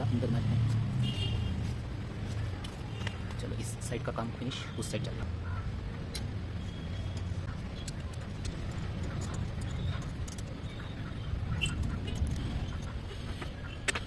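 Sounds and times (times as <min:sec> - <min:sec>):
tools and metal parts clicking: 0:07.2 - 0:10.6.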